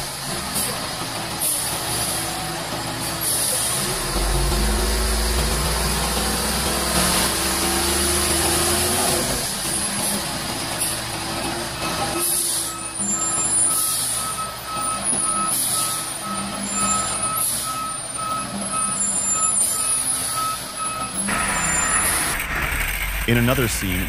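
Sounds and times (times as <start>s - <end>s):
diesel engine running: 0.0s - 24.0s
reversing alarm beeping: 11.6s - 23.7s.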